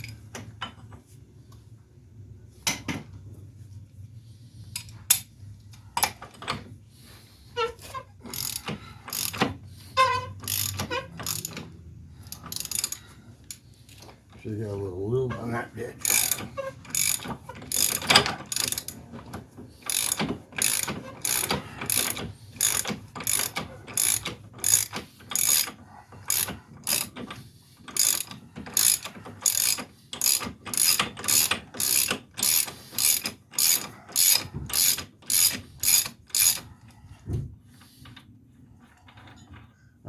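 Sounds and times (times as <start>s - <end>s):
ratchet wrench clicking: 8.3s - 9.4s, 10.0s - 14.0s, 16.0s - 19.0s, 19.8s - 36.7s.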